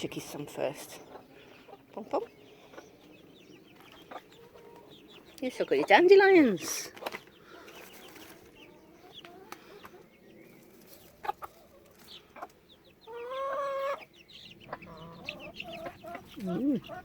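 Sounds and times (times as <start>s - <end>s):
chickens clucking: 0.0s - 17.0s
chicken drawn-out call: 13.1s - 17.0s.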